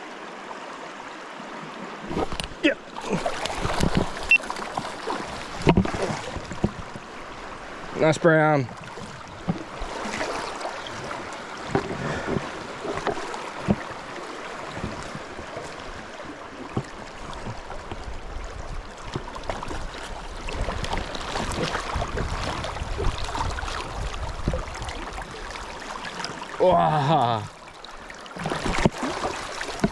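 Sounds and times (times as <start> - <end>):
river water running and splashing: 0.0 - 29.9
wind buffeting microphone: 17.2 - 26.7.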